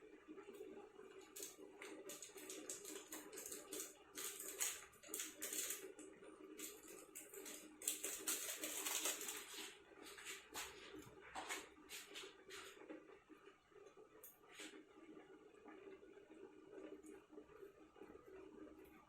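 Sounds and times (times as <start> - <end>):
kitchen utensils scraping and clicking: 1.4 - 5.9, 6.6 - 10.5.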